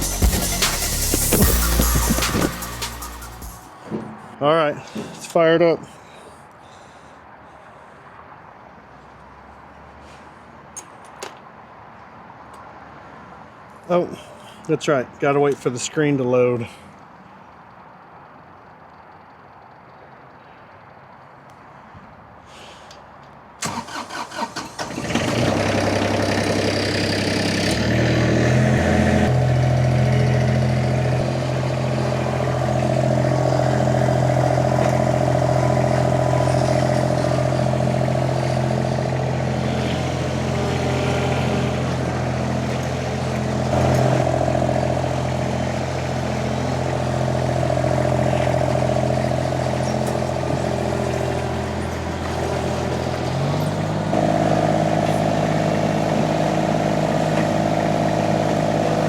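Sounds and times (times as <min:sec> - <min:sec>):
diesel engine starter cranking: 0:00.0 - 0:05.6, 0:23.6 - 0:59.0
diesel engine running: 0:00.0 - 0:08.0, 0:23.6 - 0:59.0.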